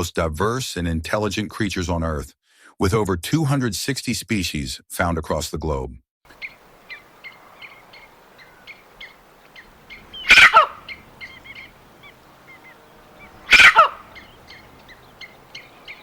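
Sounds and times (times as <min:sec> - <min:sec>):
falling animal calls: 0:06.3 - 0:16.0
small birds chirping: 0:06.3 - 0:16.0.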